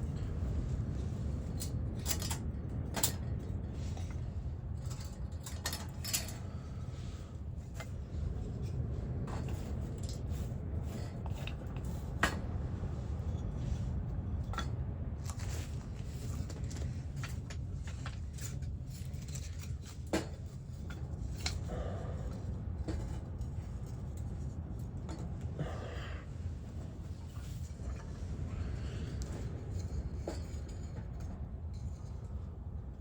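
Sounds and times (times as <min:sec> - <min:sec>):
metallic clinks of things handled: 0:00.0 - 0:07.0, 0:16.2 - 0:25.4.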